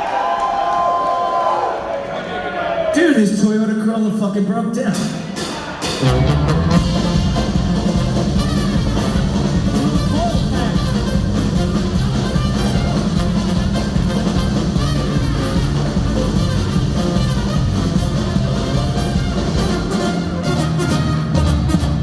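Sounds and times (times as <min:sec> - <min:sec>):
live ska-punk band: 0:04.9 - 0:22.0.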